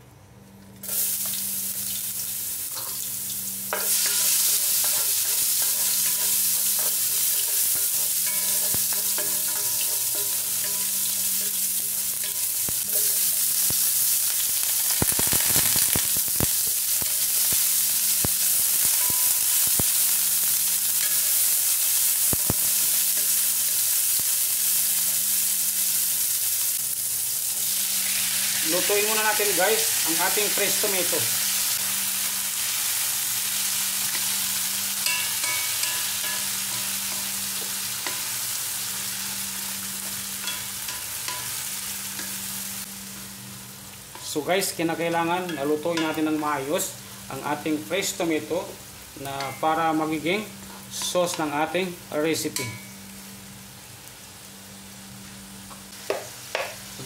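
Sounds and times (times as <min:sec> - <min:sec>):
garlic and onions sizzling in oil: 0:00.8 - 0:57.0
utensil tapping and scraping pan: 0:03.7 - 0:11.6.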